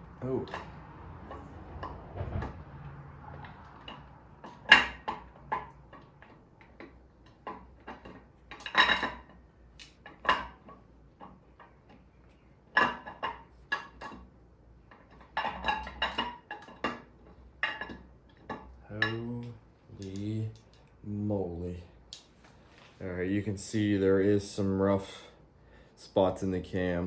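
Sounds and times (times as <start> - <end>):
metal clinks and knocks: 3.4 - 11.7, 19.9 - 21.0.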